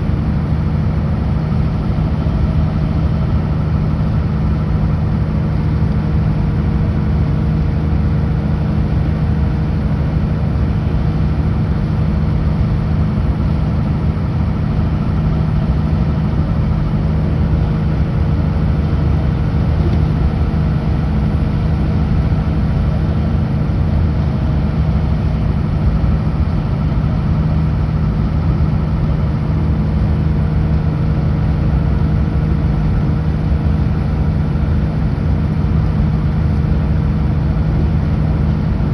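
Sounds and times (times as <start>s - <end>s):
truck diesel engine running: 0.0s - 38.9s.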